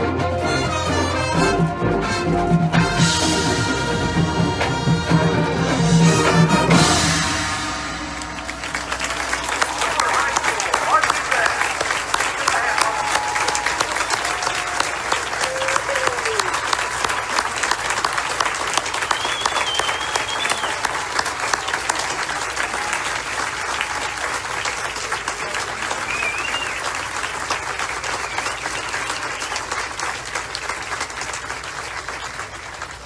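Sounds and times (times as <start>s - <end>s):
audience applauding: 6.3s - 33.0s
high calls from crowd: 6.6s - 32.8s.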